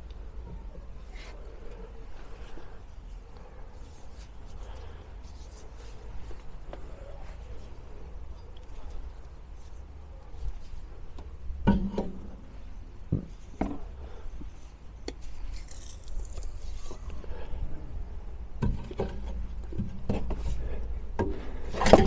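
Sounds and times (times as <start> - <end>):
metal parts and tools clinking: 3.8 - 18.0, 18.6 - 22.0.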